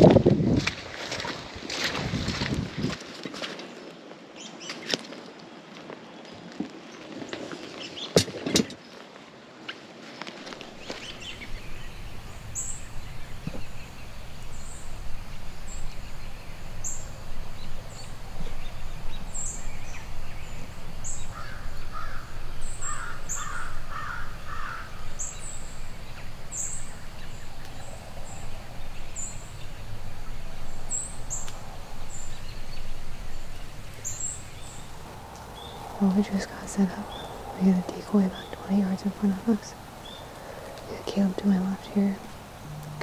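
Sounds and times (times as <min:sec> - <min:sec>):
harsh crow-like caws: 0:21.4 - 0:24.9
low rumble: 0:24.9 - 0:43.0.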